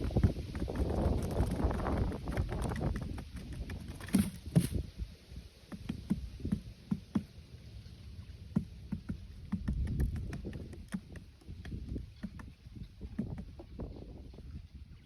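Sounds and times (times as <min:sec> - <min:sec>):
light knocks and taps: 0:05.7 - 0:07.3, 0:08.5 - 0:13.7.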